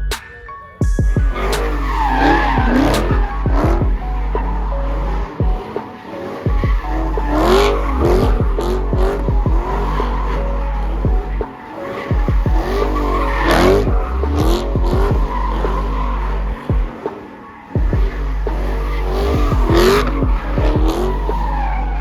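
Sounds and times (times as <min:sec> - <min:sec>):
tyres squealing and skidding: 0:00.1 - 0:22.0
car engine revving: 0:01.0 - 0:22.0.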